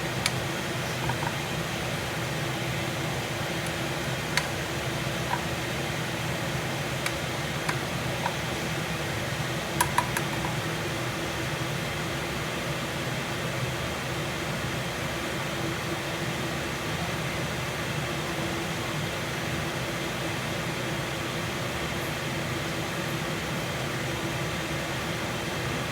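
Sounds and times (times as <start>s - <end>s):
exhaust fan whirring: 0.0s - 19.5s.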